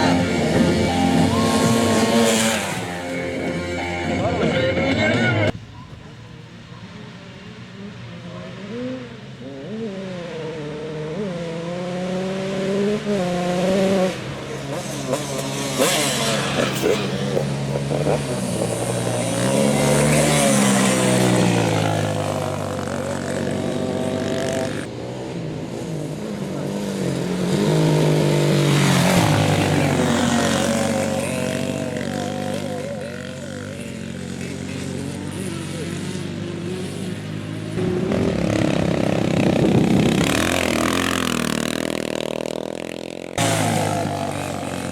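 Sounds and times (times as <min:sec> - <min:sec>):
motorcycle engine revving: 0:00.0 - 0:05.6, 0:07.8 - 0:44.9.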